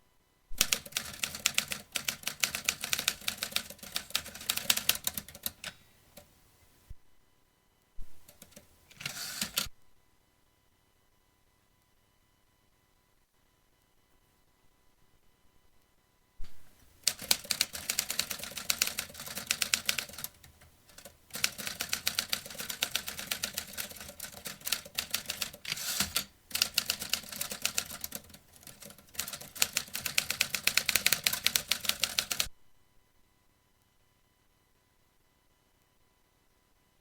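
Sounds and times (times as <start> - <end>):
typewriter keystroke clacks: 0.6 - 6.3, 8.2 - 9.7, 17.0 - 32.5.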